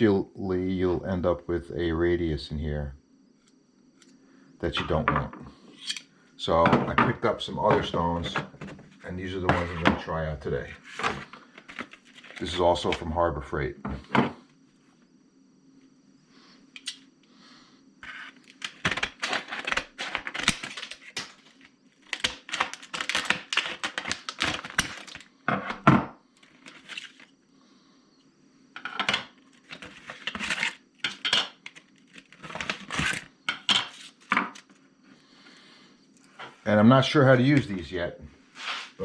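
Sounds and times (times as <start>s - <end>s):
packaging tearing: 22.1s - 25.2s.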